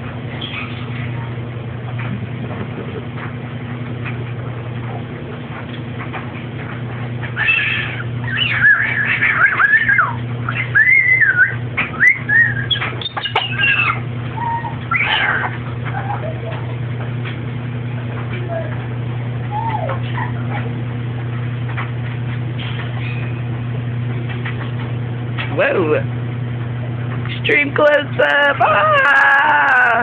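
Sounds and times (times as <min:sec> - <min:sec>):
steady low hum: 0:00.0 - 0:30.0
parrot whistling: 0:07.4 - 0:15.5.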